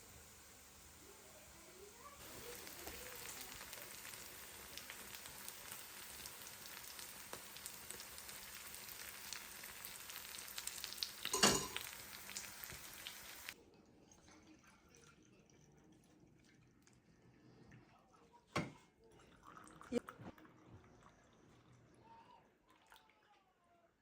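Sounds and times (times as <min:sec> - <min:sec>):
food sizzling in a pan: 0:00.0 - 0:13.6.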